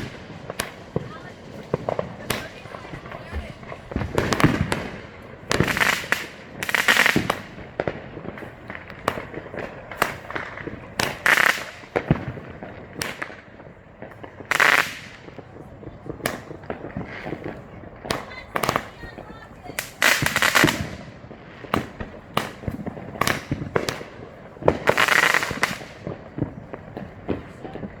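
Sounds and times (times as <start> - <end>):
fireworks bangs: 0.0 - 28.0
loud fireworks bursts: 0.0 - 28.0.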